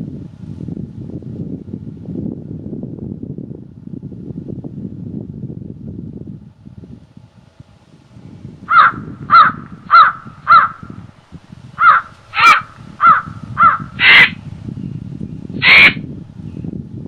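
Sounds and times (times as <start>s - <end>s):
wind rushing through forest: 0.0s - 17.0s
bird cawing: 8.7s - 11.0s, 11.8s - 14.4s, 15.6s - 16.0s.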